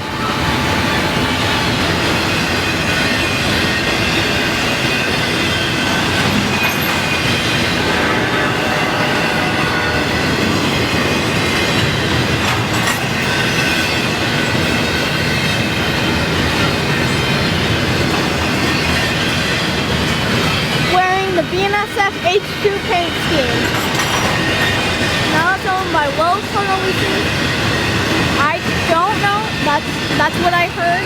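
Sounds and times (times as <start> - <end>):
faint high wheel squeal: 0.0 - 12.2
train wheels rumbling and rattling: 0.0 - 31.0.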